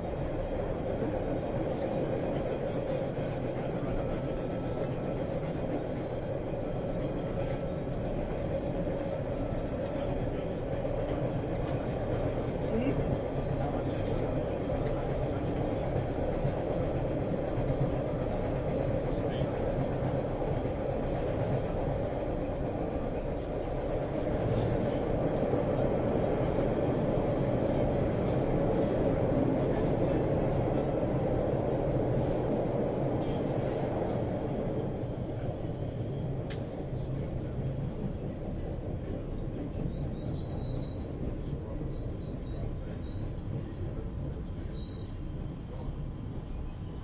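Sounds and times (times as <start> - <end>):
subway train rumbling: 0.0 - 47.0
faint high squeal: 39.9 - 41.1, 41.9 - 43.4, 44.6 - 45.4.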